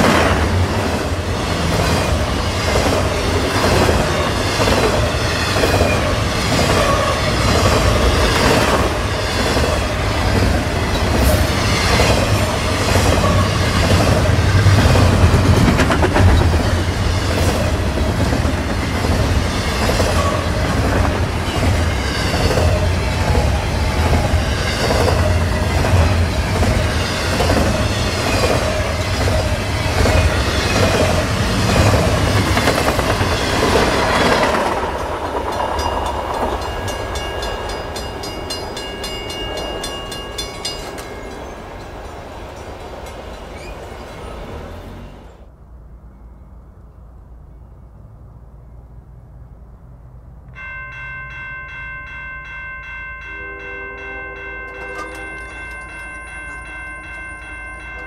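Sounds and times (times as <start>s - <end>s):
wheels clacking over rails: 0.0s - 44.4s
freight train rumbling: 0.0s - 58.0s.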